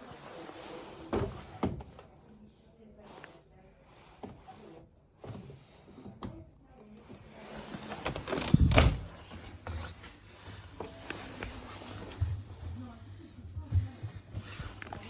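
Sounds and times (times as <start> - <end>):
clunks and knocks of handling: 7.9 - 9.9.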